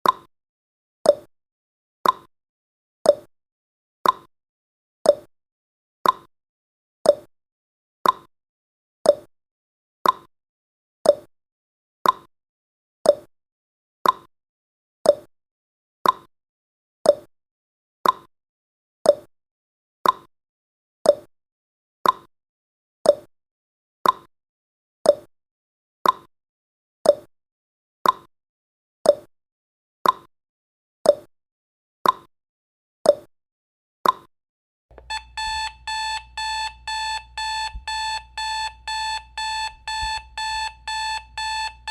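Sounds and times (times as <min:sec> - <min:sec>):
clock ticking: 0:34.9 - 0:41.9.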